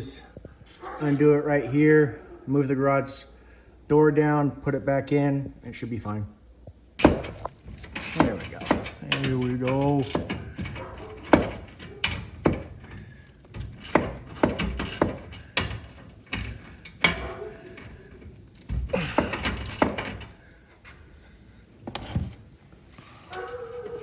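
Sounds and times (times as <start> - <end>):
sharp metallic clanks and knocks: 0.6 - 1.4, 7.0 - 20.5.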